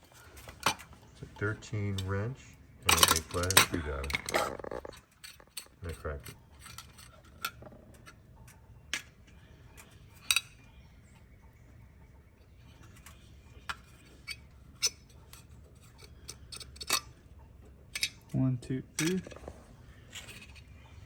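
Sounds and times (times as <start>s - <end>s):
low steady hum: 0.0s - 21.0s
hand tools clinking on metal: 0.2s - 8.6s, 17.9s - 21.0s.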